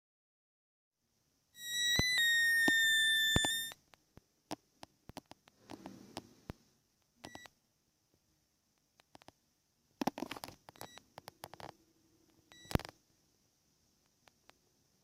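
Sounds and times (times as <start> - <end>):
electronic clicks and glitchy blips: 1.6 - 3.8, 7.2 - 7.5, 10.0 - 13.0.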